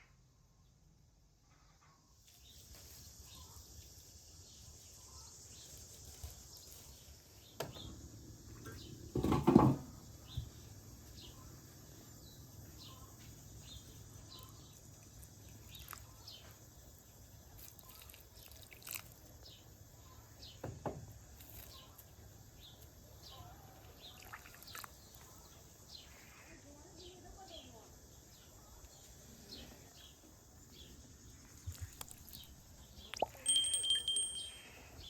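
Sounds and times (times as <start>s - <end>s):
birds chirping: 27.0s - 35.0s.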